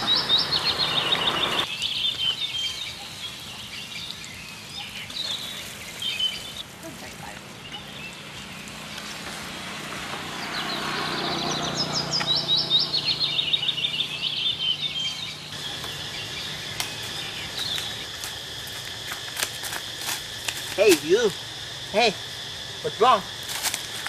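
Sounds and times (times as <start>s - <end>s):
birds chirping: 0.0s - 24.0s
light crackles: 1.6s - 10.2s, 15.6s - 21.4s, 23.3s - 24.0s
high repeated bird chirps: 10.4s - 15.6s.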